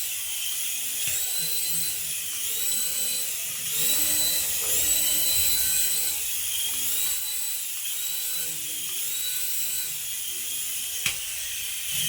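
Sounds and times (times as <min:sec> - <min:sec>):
toy electric motor whining: 0:00.0 - 0:12.0.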